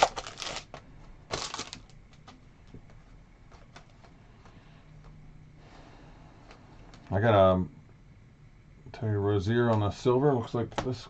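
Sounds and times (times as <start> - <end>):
wrapper crinkling: 0.0 - 2.4
cards clicking and rustling: 0.0 - 2.9.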